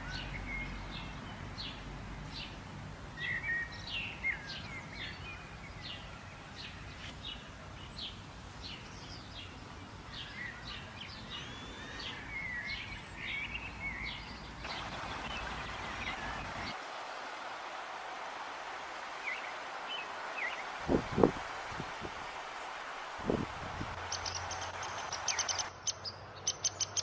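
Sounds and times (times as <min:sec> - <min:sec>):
steady background hiss: 0:00.0 - 0:27.0
birds chirping and calling: 0:24.0 - 0:27.0.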